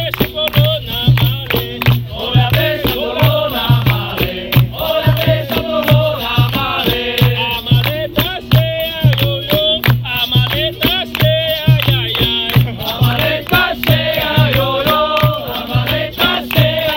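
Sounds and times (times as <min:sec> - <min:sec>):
group singing in chorus: 0:00.0 - 0:16.9
low drum beat: 0:00.0 - 0:16.9.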